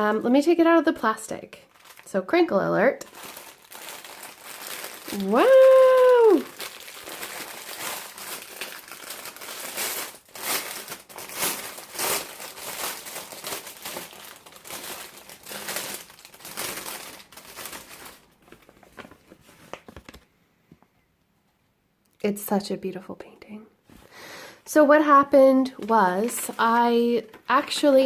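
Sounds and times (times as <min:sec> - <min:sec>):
plastic wrapping crinkling: 0:01.5 - 0:20.3, 0:25.6 - 0:28.0.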